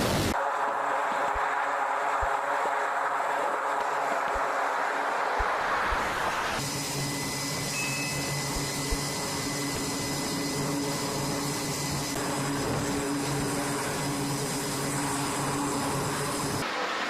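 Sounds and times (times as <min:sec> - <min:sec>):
machinery drone with high whine: 0:00.0 - 0:17.0
brief higher tone: 0:07.7 - 0:08.6.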